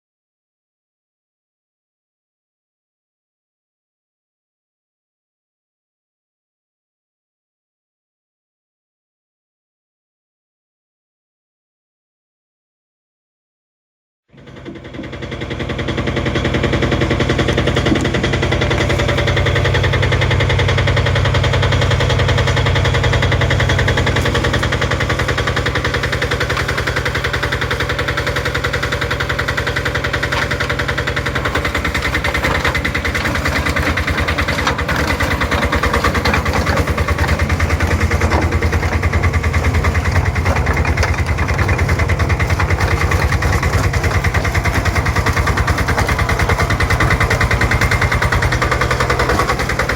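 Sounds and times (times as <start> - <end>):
dumper engine chugging: 14.4 - 49.9.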